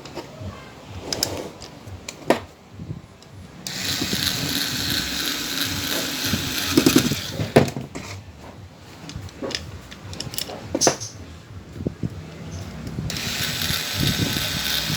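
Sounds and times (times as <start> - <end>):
small power tool running: 3.7 - 7.6, 13.1 - 14.9.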